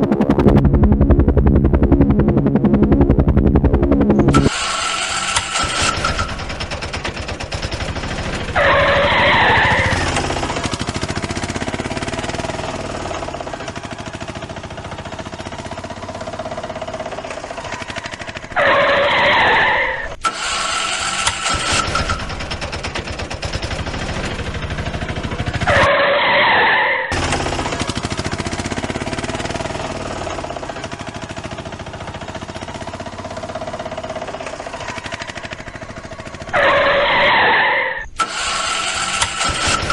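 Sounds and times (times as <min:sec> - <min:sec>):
cartoon engine running: 0:00.0 - 0:13.7, 0:16.3 - 0:22.9, 0:23.5 - 0:27.9, 0:33.1 - 0:39.9
tire screech: 0:04.2 - 0:07.0, 0:07.9 - 0:13.3, 0:17.2 - 0:22.6, 0:25.3 - 0:27.6, 0:32.8 - 0:39.9.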